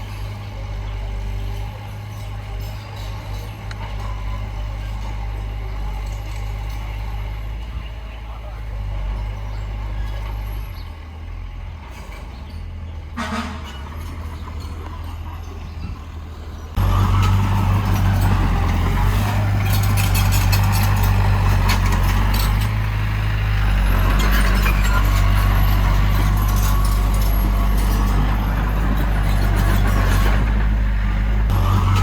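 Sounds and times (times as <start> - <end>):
heavy diesel engine rumble: 0.0 - 32.0
machinery rattling and clatter: 16.7 - 32.0.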